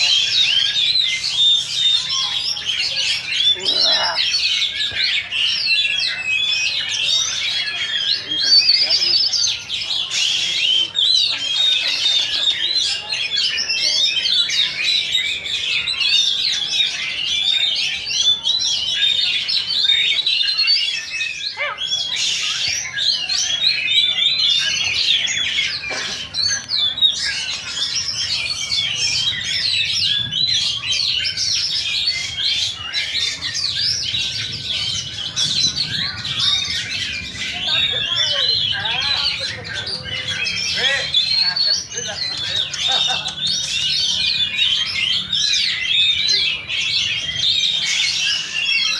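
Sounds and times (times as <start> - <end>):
many birds singing: 0.0 - 48.9.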